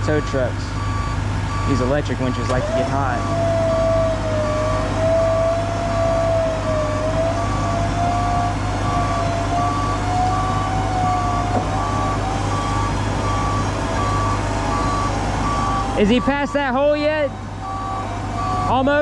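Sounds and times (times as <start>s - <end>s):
low engine rumble: 0.0s - 19.0s
truck reversing alarm beeping: 0.0s - 19.0s
electric winch whining: 2.2s - 16.6s.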